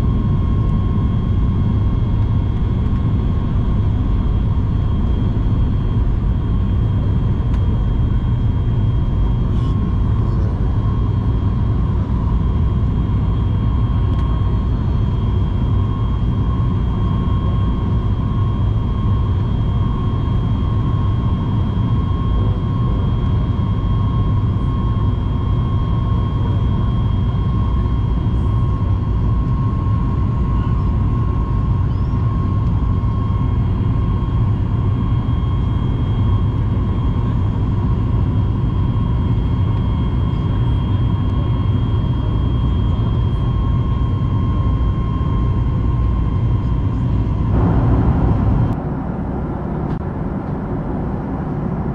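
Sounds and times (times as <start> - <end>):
jet engines high whine: 0.0 - 51.9
jet engines low rumble: 0.0 - 51.9.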